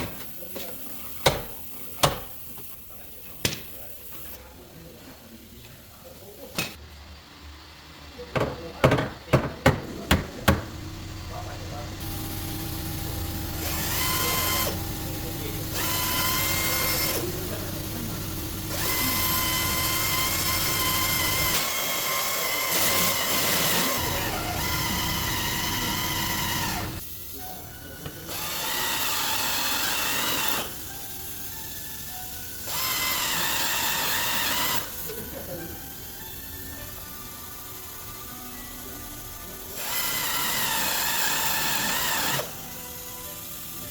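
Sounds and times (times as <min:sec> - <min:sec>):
power drill whining: 0:10.6 - 0:27.0, 0:28.2 - 0:43.9.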